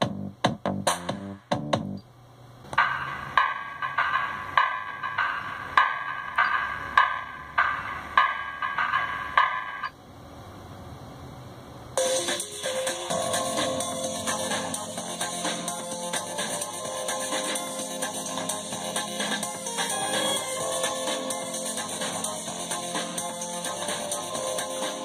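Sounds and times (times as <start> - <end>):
electronic beat music: 0.0 - 2.0, 2.8 - 9.9, 12.0 - 25.0.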